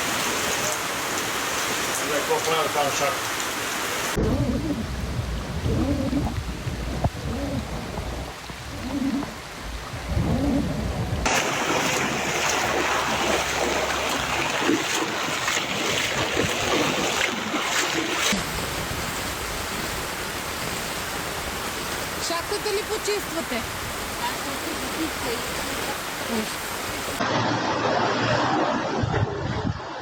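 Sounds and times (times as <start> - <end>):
rain: 0.0 - 28.1
running floodwater: 0.0 - 29.5
heavy low rumble: 4.2 - 14.6.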